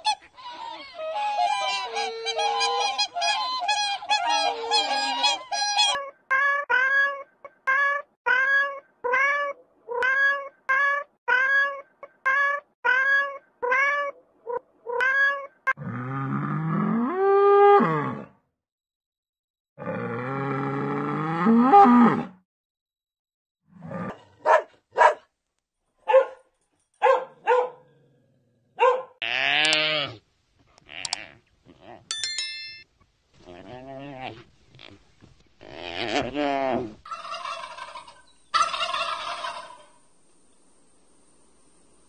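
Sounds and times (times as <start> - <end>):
short dog barks: 26.1 - 26.4, 27.0 - 27.8, 28.8 - 29.2.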